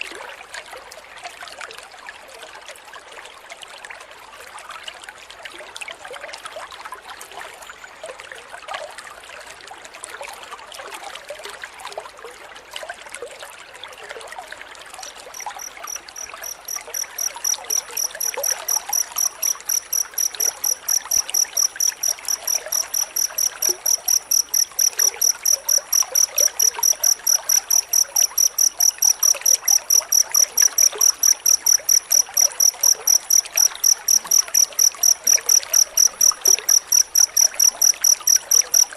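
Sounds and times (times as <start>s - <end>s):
cricket chirping: 15.1s - 38.9s.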